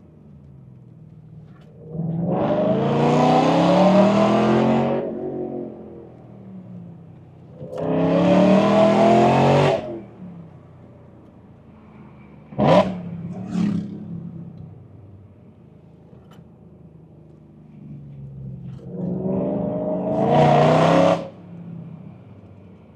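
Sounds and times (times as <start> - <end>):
car engine revving: 1.4 - 6.1, 7.4 - 10.2, 12.5 - 14.4, 18.6 - 21.4.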